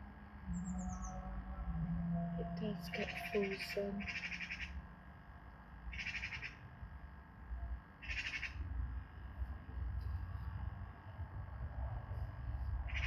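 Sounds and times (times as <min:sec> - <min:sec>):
wind rumble on microphone: 0:00.0 - 0:06.0, 0:06.6 - 0:13.0
bird buzzy trilled calls: 0:02.6 - 0:04.8, 0:05.9 - 0:06.6, 0:08.0 - 0:08.6.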